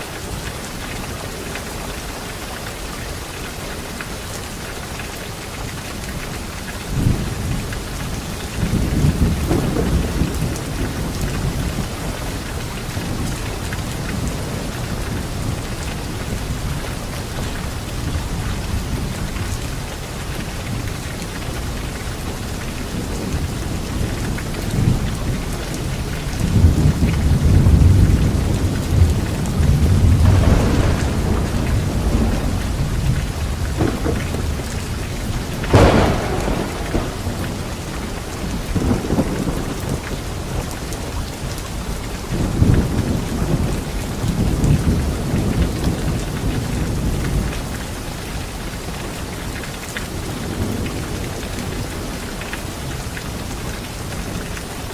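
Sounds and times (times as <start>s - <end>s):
light rain on leaves: 0.0s - 54.9s
thunder rumbling: 6.9s - 19.6s, 22.8s - 47.8s.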